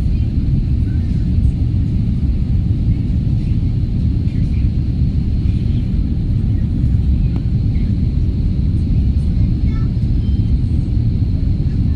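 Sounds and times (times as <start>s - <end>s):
airliner cabin rumble: 0.0s - 11.9s
faint voices: 0.0s - 11.9s.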